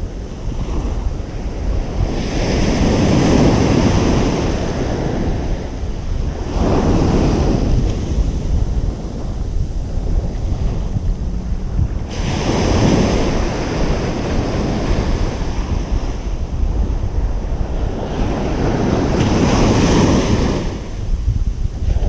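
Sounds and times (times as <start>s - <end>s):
ocean waves breaking: 0.0s - 22.0s
wind rumble on microphone: 0.0s - 22.0s.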